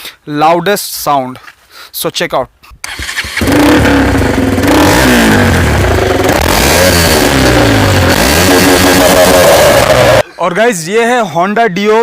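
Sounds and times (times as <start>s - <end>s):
motorcycle revving hard: 2.9s - 10.2s.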